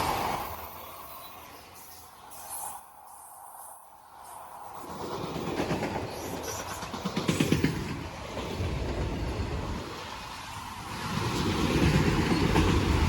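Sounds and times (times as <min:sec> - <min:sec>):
train wheels clacking: 0:04.8 - 0:09.2.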